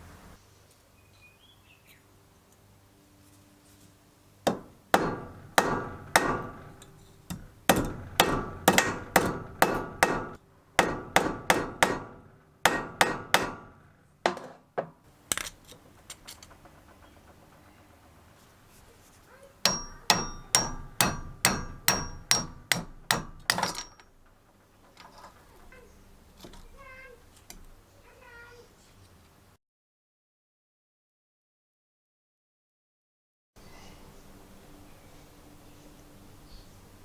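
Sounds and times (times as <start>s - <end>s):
hammer striking metal: 4.5s - 14.4s, 19.6s - 24.3s.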